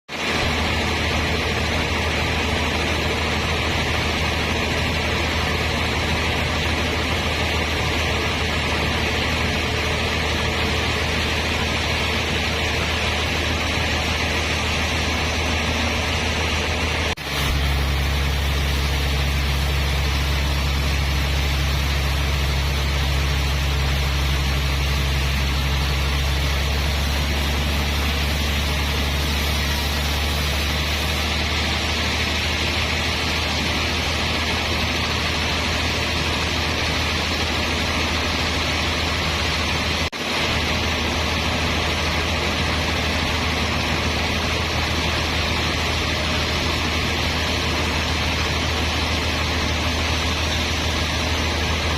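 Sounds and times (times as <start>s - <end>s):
sawmill machinery hum: 0.1s - 51.9s
broad hiss: 17.2s - 33.5s.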